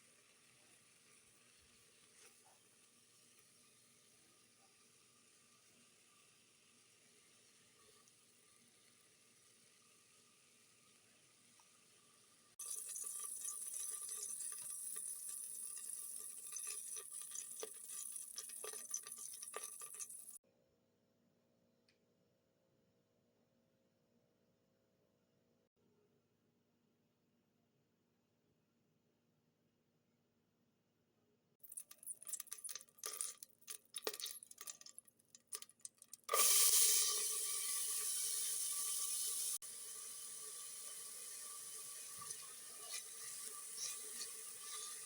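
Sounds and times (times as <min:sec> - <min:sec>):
food sizzling in hot oil: 0:00.0 - 0:20.4, 0:31.7 - 0:45.0.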